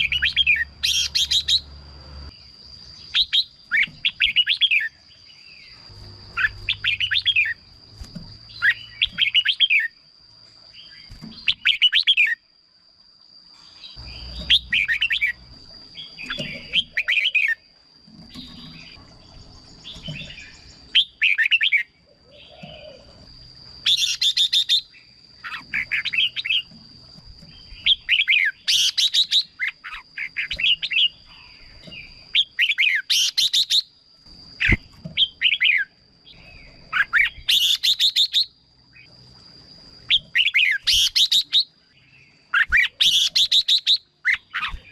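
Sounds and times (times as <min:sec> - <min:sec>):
bird warbling: 0:00.0 - 0:01.7, 0:34.6 - 0:38.5.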